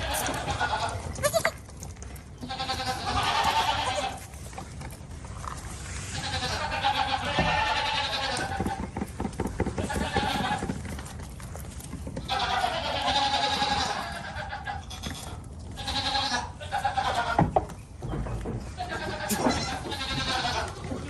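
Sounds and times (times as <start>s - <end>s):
goats bleating: 0.0s - 4.4s, 6.1s - 8.9s, 9.7s - 11.0s, 12.2s - 17.5s, 18.7s - 21.0s.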